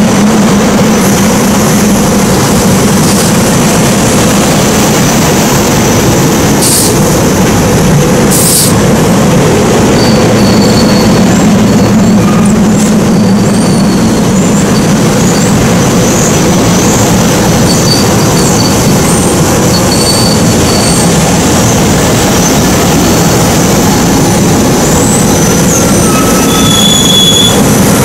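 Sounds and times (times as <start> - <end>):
train wheels rumbling on rail: 0.0 - 28.0
high wheel squeals: 9.9 - 28.0.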